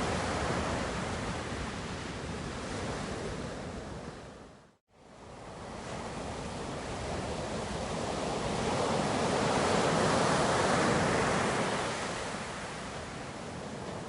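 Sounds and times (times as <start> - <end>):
ocean wave washing: 5.4 - 14.0.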